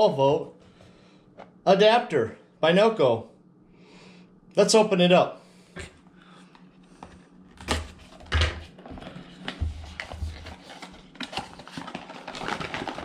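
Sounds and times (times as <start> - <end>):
packaging crinkling: 8.8 - 13.0.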